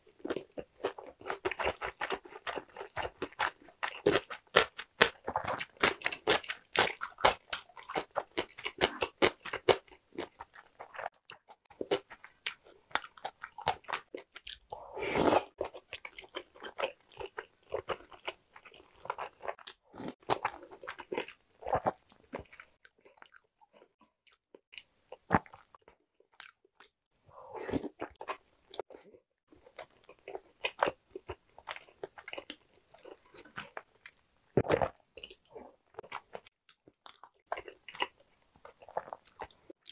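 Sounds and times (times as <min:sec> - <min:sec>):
wet chewing and smacking: 0:00.2 - 0:14.8, 0:29.6 - 0:39.9.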